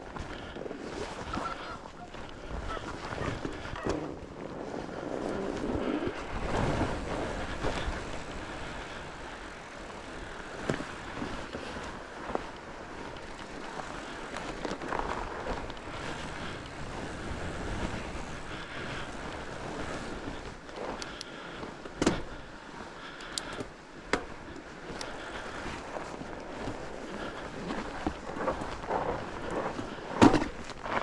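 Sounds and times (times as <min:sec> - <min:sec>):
bike tyres rolling on trail: 0:00.0 - 0:31.0
bike knocking over bumps: 0:22.0 - 0:22.3, 0:30.1 - 0:31.0.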